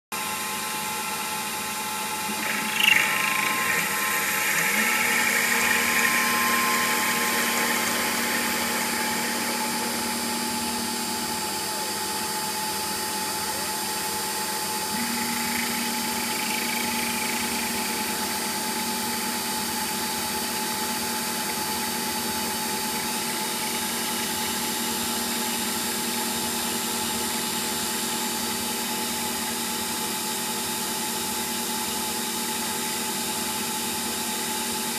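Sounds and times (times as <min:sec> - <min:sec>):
lathe machine hum: 0:02.1 - 0:13.2, 0:14.2 - 0:25.8
hissing cutting noise: 0:02.3 - 0:11.6, 0:15.0 - 0:20.0.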